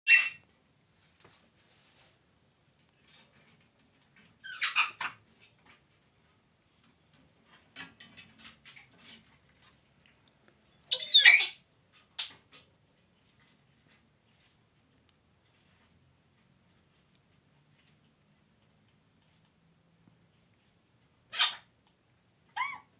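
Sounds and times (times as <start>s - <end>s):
parrot chirp: 0.1s - 0.4s, 4.4s - 5.2s, 10.9s - 11.6s, 21.3s - 21.7s, 22.6s - 22.9s
parrot squawking: 0.1s - 0.4s, 4.4s - 5.2s, 10.9s - 11.6s, 21.3s - 21.7s, 22.6s - 22.9s.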